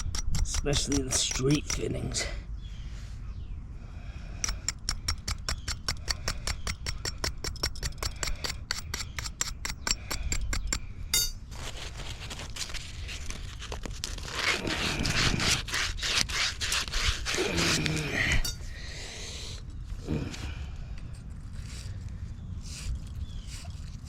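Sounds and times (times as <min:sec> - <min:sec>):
short metallic ring: 0:11.1 - 0:11.4.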